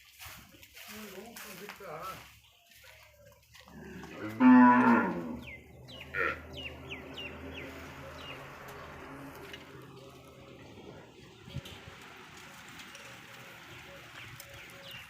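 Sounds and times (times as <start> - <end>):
cow mooing: 3.7 - 9.5.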